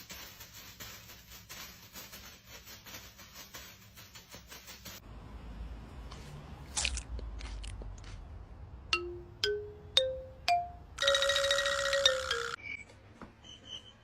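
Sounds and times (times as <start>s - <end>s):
rising mallet notes: 8.9s - 12.6s.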